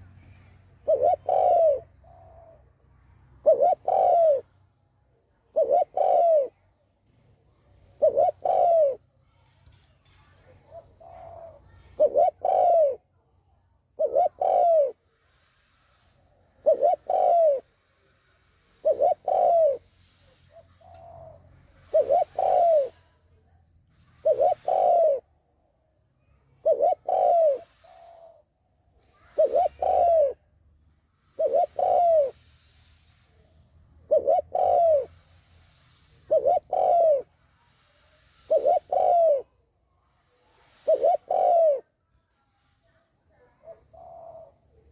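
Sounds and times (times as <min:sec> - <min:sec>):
dove cooing: 0:00.0 - 0:02.7, 0:03.4 - 0:04.5, 0:05.4 - 0:06.7, 0:07.8 - 0:09.0, 0:10.2 - 0:13.1, 0:14.0 - 0:15.0, 0:16.5 - 0:17.7, 0:18.8 - 0:23.2, 0:24.1 - 0:25.3, 0:26.5 - 0:28.4, 0:29.2 - 0:30.5, 0:31.3 - 0:32.4, 0:34.0 - 0:35.2, 0:36.2 - 0:37.3, 0:38.4 - 0:39.6, 0:40.6 - 0:41.9, 0:43.4 - 0:44.9.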